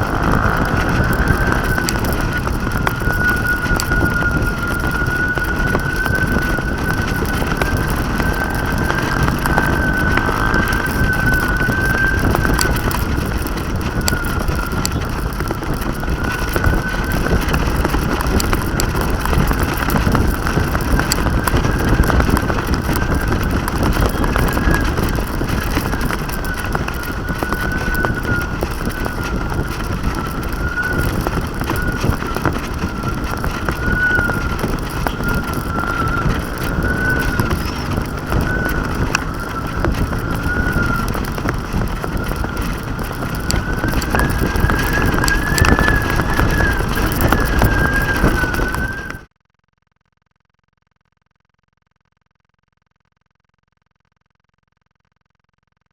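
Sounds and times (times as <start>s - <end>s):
steady high hum: 0.0s - 2.7s
wind buffeting microphone: 0.0s - 49.3s.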